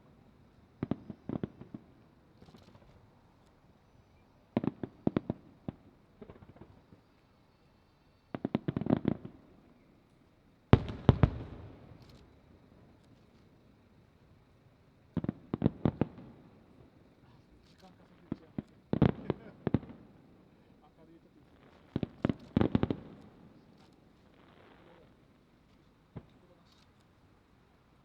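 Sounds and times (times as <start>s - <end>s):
fireworks bursting: 10.8s - 12.2s, 15.2s - 16.4s, 17.8s - 25.4s
fireworks crackling: 17.4s - 27.2s.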